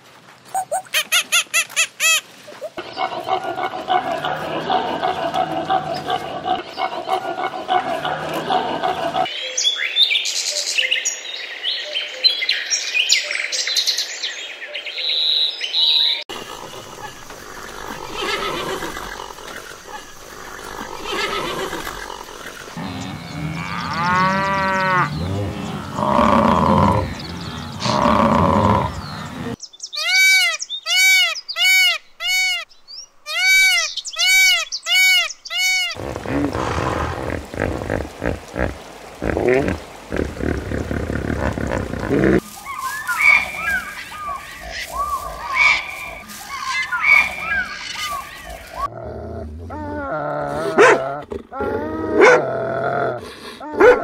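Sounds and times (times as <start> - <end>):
braying calls with throaty cries: 0.6 - 9.3, 16.4 - 32.6, 33.3 - 48.9.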